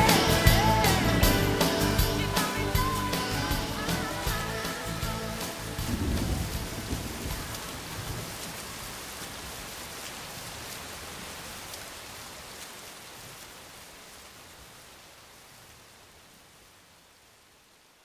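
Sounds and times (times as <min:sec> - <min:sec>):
rain hiss: 0:00.0 - 0:18.0
raindrop ticks: 0:05.6 - 0:13.6.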